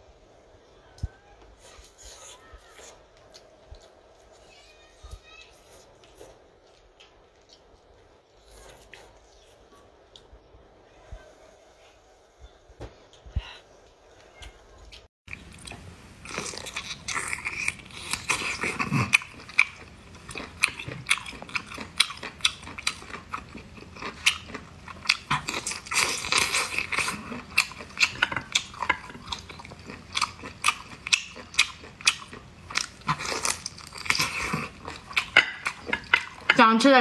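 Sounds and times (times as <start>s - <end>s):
person chewing with mouth clicks: 14.8s - 36.6s.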